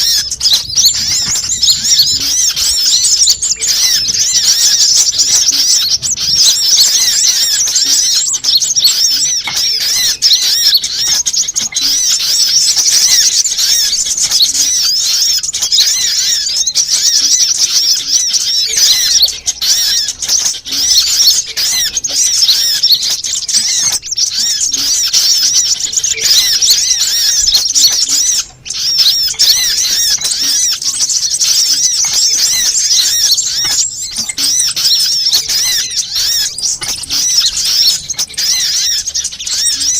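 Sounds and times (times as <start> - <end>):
sunbirds twittering chorus: 0.0 - 39.9.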